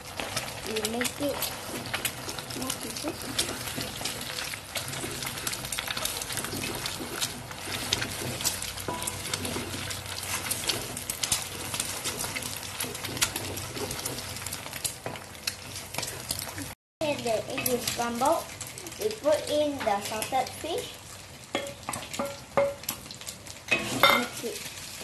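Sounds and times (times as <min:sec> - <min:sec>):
eggs sizzling in hot oil: 0:00.0 - 0:25.0
wooden spatula chopping against pan: 0:21.5 - 0:23.0.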